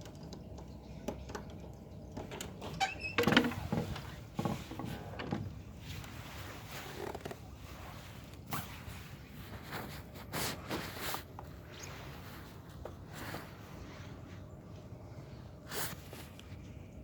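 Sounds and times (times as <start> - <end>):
door clicks knocks and rattles: 2.2 - 5.6.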